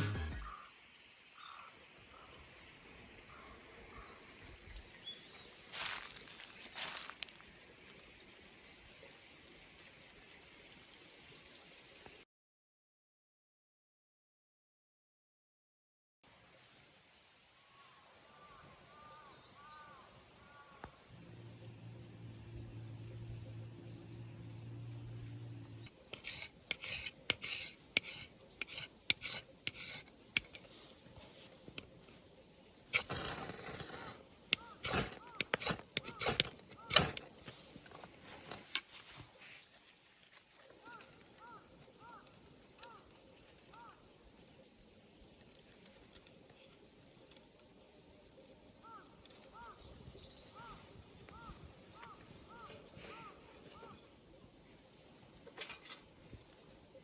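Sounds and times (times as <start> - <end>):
faint outdoor hiss: 0.0 - 12.2, 16.2 - 57.0
rustling noises: 5.7 - 7.6, 26.0 - 44.6
short scraping strokes: 25.9 - 30.8, 32.9 - 37.6.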